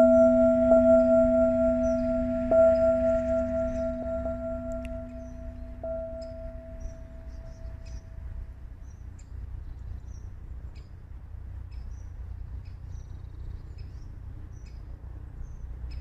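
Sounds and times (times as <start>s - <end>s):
ringing tone: 0.0s - 8.4s
low rumble: 0.0s - 8.7s
small birds chirping: 0.0s - 11.0s.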